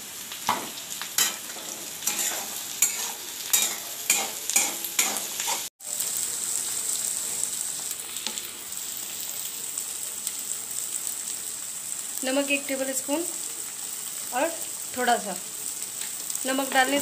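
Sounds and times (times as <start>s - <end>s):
vegetables sizzling in oil: 0.0s - 17.0s
spatula scraping a pan: 1.2s - 5.7s.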